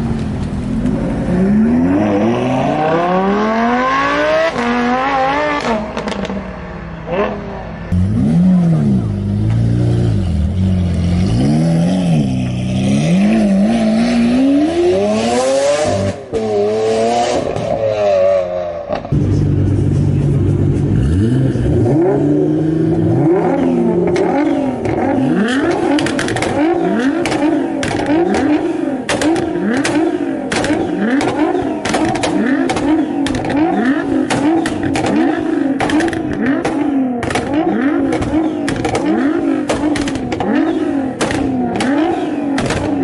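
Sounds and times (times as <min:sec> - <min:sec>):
car engines revving: 0:00.0 - 0:43.0.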